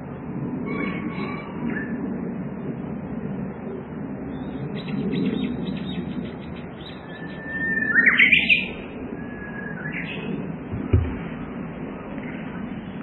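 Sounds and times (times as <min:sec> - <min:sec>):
low background rumble: 0:00.0 - 0:13.0
bush warbler singing: 0:04.3 - 0:11.5.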